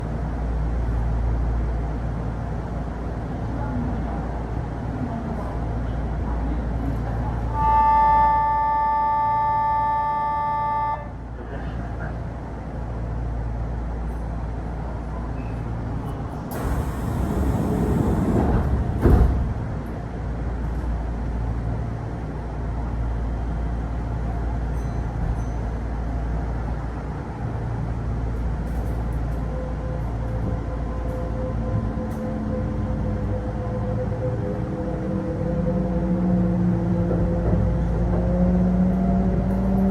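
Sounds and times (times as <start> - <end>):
train car low hum: 0.0 - 39.9
air hiss: 16.5 - 18.6
rising train motor tones: 16.5 - 19.4.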